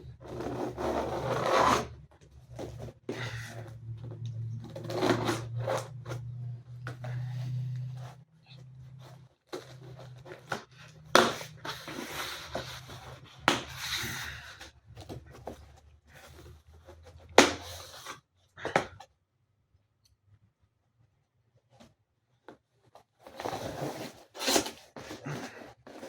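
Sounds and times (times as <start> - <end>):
cardboard scraping and tearing: 0.0 - 6.3, 8.9 - 18.2, 23.2 - 26.0.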